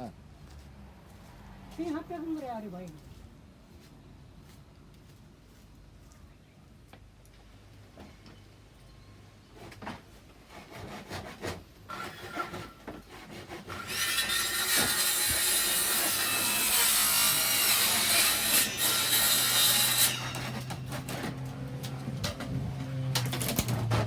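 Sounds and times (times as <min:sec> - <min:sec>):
saw cutting wood: 0:10.5 - 0:24.0.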